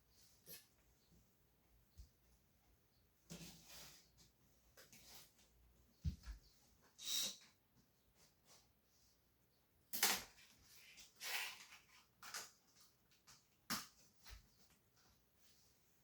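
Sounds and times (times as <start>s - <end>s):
plastic pieces scraping: 10.0s - 13.0s.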